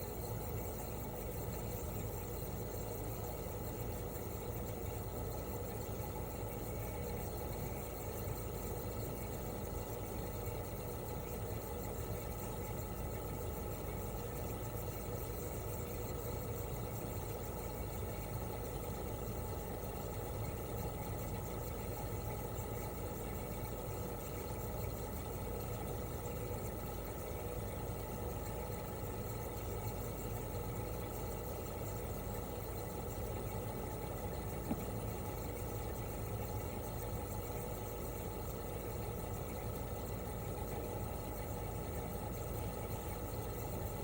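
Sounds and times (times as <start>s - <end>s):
compressor humming: 32.7s - 36.0s.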